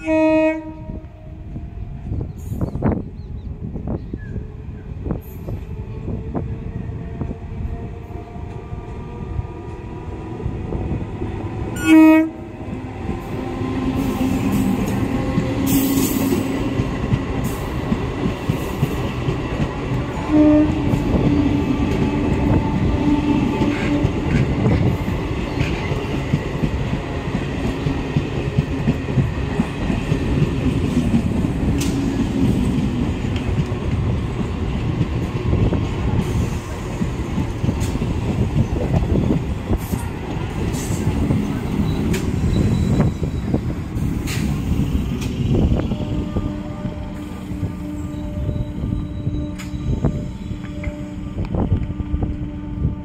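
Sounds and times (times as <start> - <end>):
train horn blasts: 0.0 - 1.6, 11.8 - 12.6, 20.0 - 25.0, 45.6 - 53.0
train wheels rumbling and clattering: 0.8 - 53.0.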